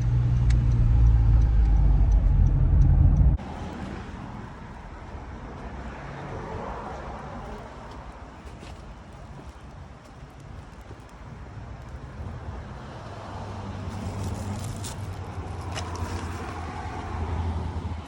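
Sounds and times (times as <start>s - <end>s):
car driving rumble from cabin: 0.0s - 4.9s.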